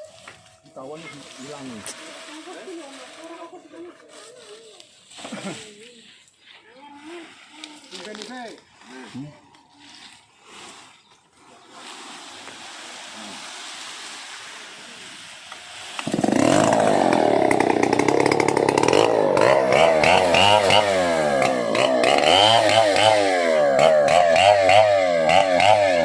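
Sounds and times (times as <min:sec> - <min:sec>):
chainsaw engine revving: 0:15.7 - 0:26.0.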